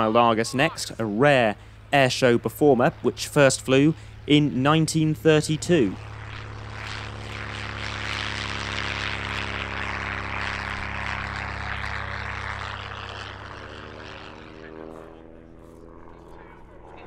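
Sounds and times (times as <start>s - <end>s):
propeller plane droning: 0.0s - 17.0s.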